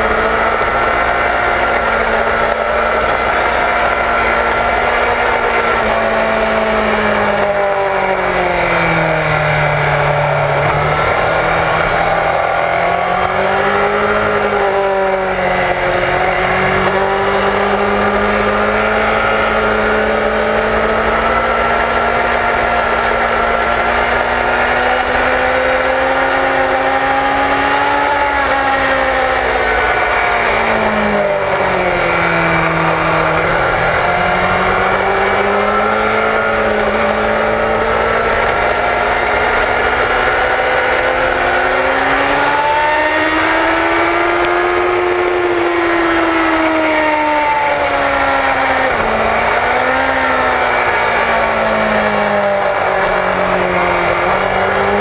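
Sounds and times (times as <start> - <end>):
motorcycle engine at speed: 0.0 - 55.0.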